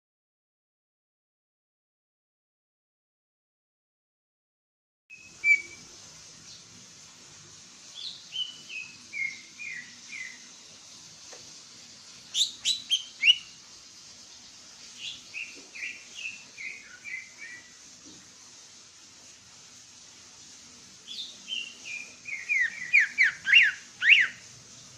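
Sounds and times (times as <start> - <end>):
bird whistling song: 5.1 - 5.9, 8.0 - 10.4, 12.3 - 13.6, 15.0 - 17.7, 21.1 - 24.5.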